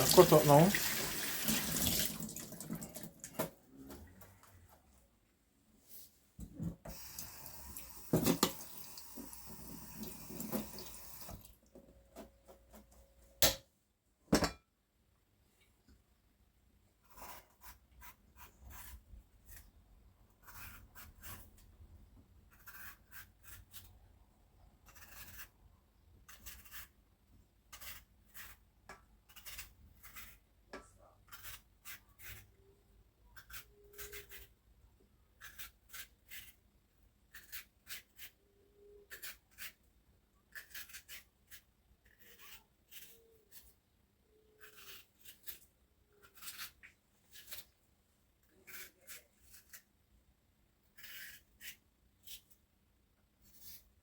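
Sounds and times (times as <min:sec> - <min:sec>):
knife cutting on a cutting board: 0:17.0 - 0:19.7, 0:20.4 - 0:21.7, 0:22.5 - 0:23.9, 0:24.8 - 0:25.6, 0:27.7 - 0:28.6, 0:29.2 - 0:30.4, 0:31.2 - 0:32.5, 0:40.5 - 0:43.7, 0:44.6 - 0:47.7, 0:50.9 - 0:52.6.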